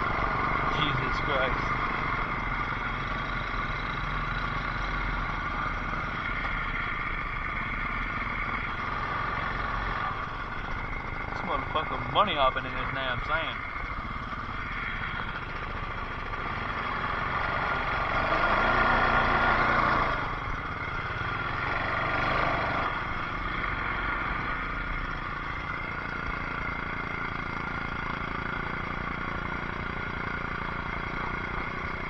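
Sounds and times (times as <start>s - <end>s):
atv engine running: 0.0s - 32.0s.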